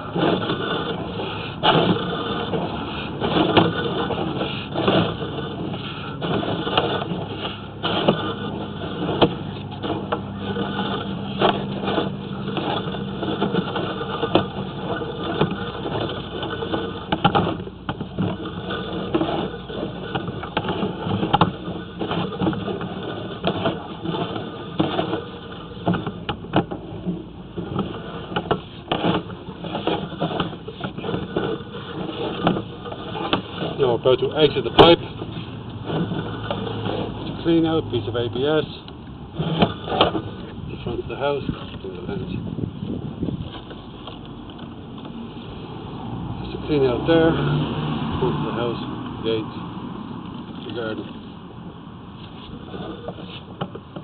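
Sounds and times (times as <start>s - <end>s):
machine engine running: 0.0s - 27.0s
irregular clicks and knocks: 0.1s - 33.8s.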